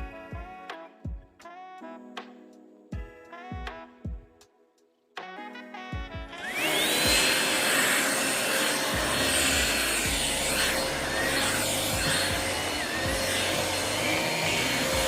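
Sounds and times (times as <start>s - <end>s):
cordless vacuum motor whining: 6.4s - 15.0s
vacuum airflow rushing: 6.4s - 15.0s.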